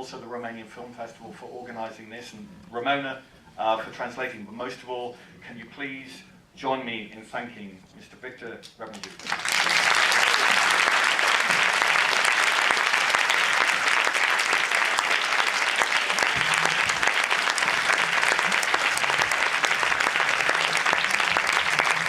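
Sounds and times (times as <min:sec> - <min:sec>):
audience applauding: 0:08.9 - 0:22.0.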